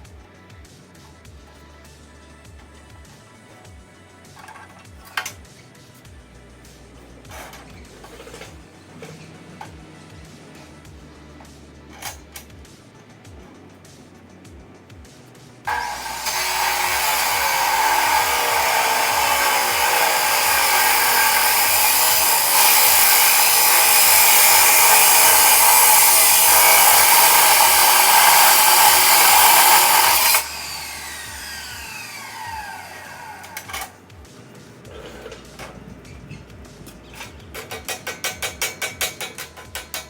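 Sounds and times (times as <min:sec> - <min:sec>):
high-speed power tool running: 0:15.7 - 0:33.9.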